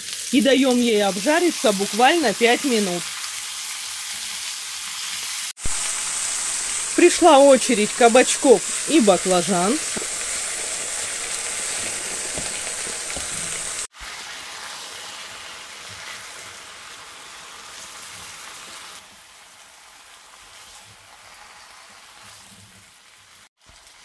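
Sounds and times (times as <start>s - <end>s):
meat and vegetables sizzling: 0.0s - 24.0s
spatula stirring in pan: 5.6s - 13.9s.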